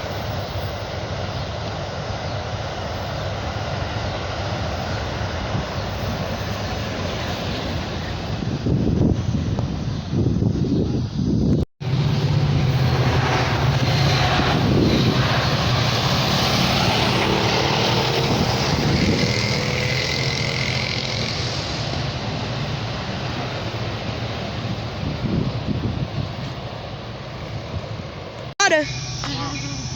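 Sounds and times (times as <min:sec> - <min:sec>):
train engine drone: 0:00.0 - 0:29.9
train wheel and rail noise: 0:00.0 - 0:29.9
faint high whine: 0:28.6 - 0:29.9.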